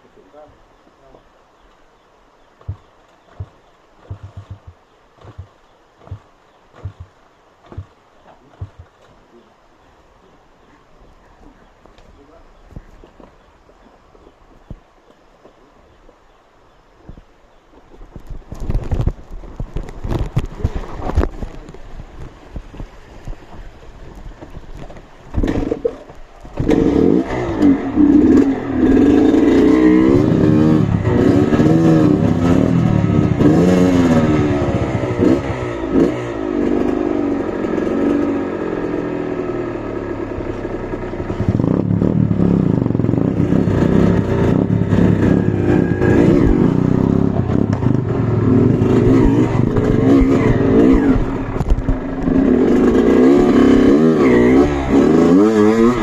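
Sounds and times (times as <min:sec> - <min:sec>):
motorcycle engine revving: 0:02.7 - 0:06.2, 0:24.8 - 0:56.0.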